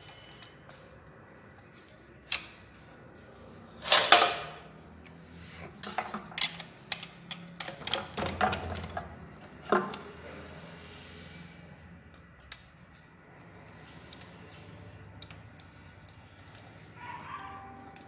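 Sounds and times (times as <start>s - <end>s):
hand tools clinking on metal: 3.8s - 4.5s, 5.8s - 9.0s.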